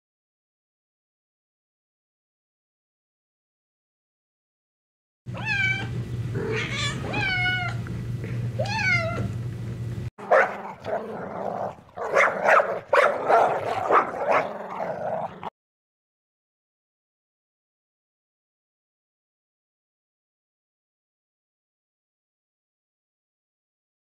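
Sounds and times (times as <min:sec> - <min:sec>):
cat meowing: 0:05.3 - 0:07.8, 0:08.6 - 0:09.3
dog barking: 0:10.2 - 0:11.1, 0:12.0 - 0:15.4.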